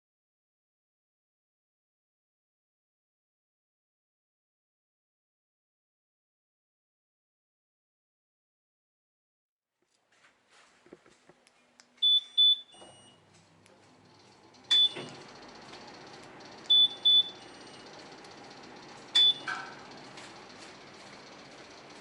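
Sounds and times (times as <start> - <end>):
steady low hum: 10.4 - 22.0
short high electronic beeps: 12.0 - 13.2, 14.7 - 15.1, 16.7 - 17.8, 19.2 - 19.6.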